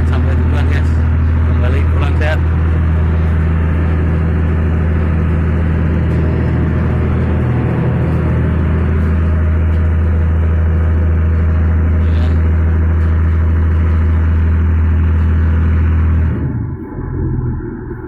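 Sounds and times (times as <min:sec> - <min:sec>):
ship engine droning: 0:00.0 - 0:18.0.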